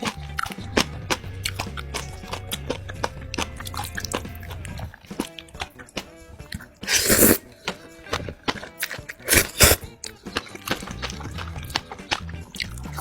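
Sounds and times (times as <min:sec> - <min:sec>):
background music: 0:00.0 - 0:13.0
crunchy chewing: 0:00.0 - 0:13.0.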